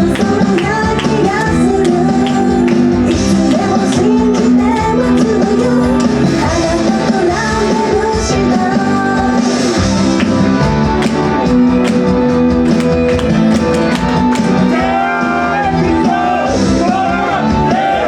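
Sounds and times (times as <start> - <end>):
woman singing: 0.0 - 10.4
loud band with guitar: 0.0 - 18.0.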